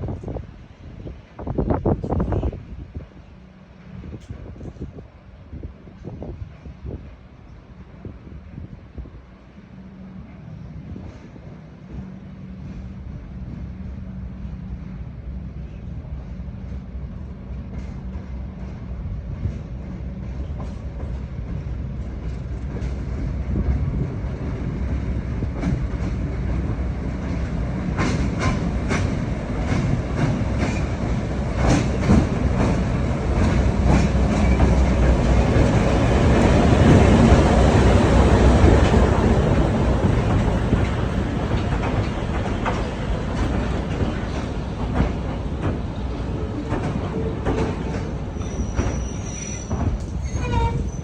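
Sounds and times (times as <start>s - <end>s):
train rumbling on rails: 0.0s - 51.0s
wheels clicking over rail joints: 25.5s - 51.0s.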